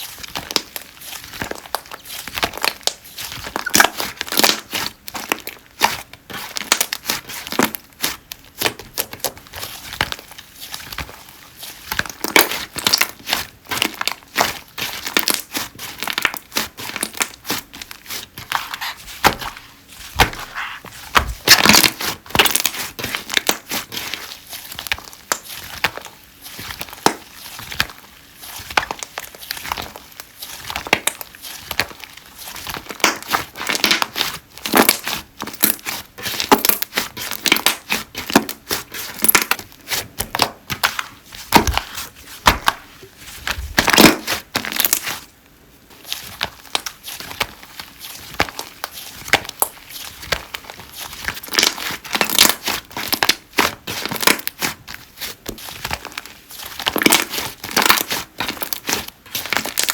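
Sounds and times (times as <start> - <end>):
slime squished by hand: 0.1 - 45.3.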